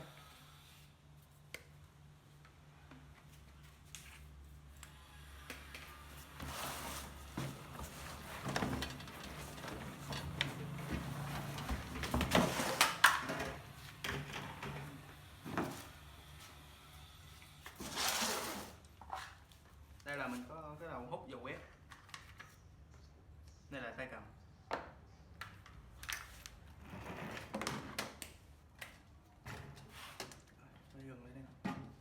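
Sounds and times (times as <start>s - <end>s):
plastic and cardboard rustling: 6.2s - 14.9s, 17.7s - 19.7s.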